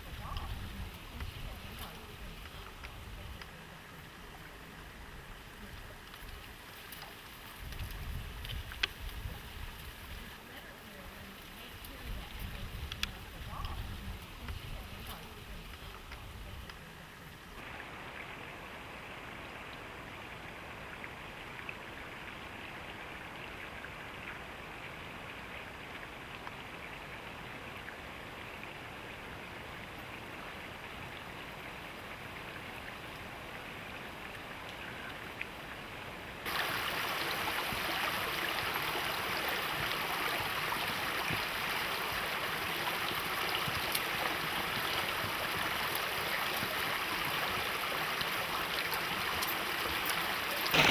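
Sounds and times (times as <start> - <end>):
stream rushing over rocks: 0.0 - 50.9.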